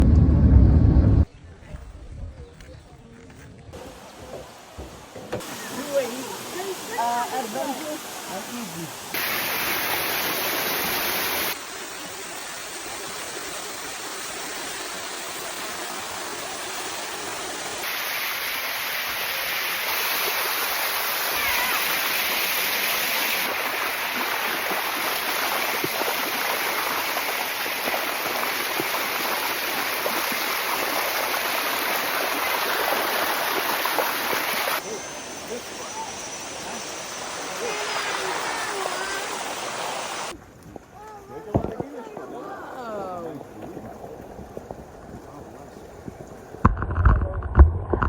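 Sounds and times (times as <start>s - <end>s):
water rushing over rocks: 3.8s - 48.0s.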